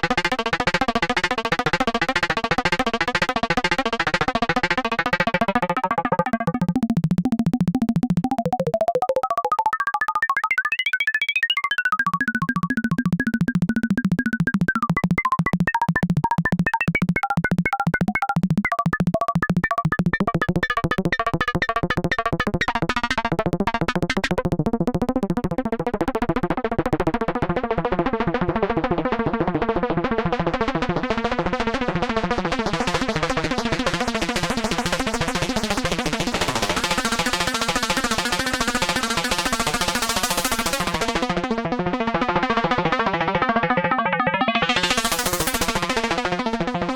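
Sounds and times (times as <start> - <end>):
synthesizer pinging melody: 2.9 - 25.8, 42.6 - 46.0.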